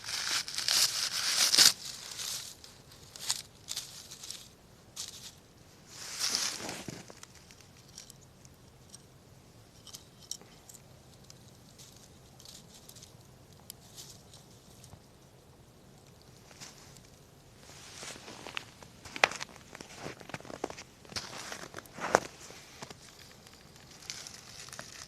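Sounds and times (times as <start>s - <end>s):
campfire wood crackling and popping: 9.8s - 17.4s, 18.4s - 25.0s.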